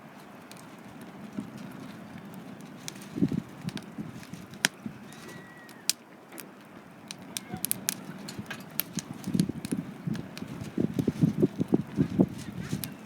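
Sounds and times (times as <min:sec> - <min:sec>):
wood fire crackling: 0:00.0 - 0:13.0
sharp pops: 0:05.7 - 0:13.0.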